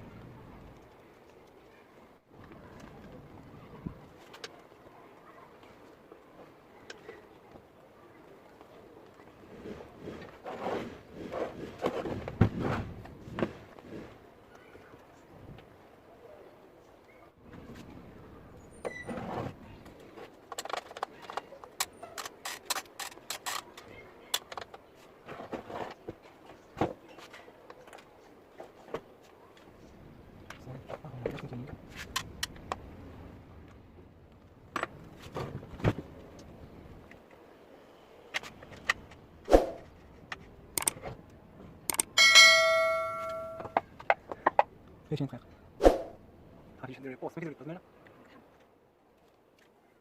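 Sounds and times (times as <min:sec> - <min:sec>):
metal parts clicking and knocking: 0:40.3 - 0:41.0
metal parts and tools clinking: 0:41.9 - 0:43.8
metal piece ringing bell-like: 0:42.2 - 0:43.7.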